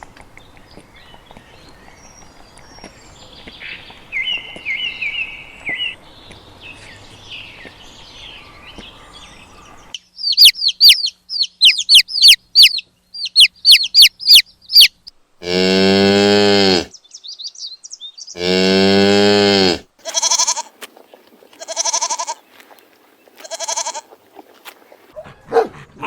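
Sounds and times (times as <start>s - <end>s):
birds chirping faintly: 0.0s - 15.3s, 16.7s - 18.6s
light outdoor hiss: 0.0s - 26.0s.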